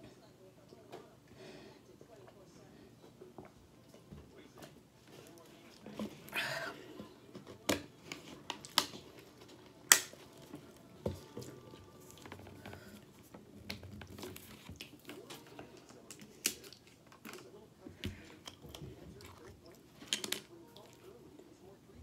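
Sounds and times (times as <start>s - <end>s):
wet chewing: 8.0s - 17.5s, 18.4s - 21.1s.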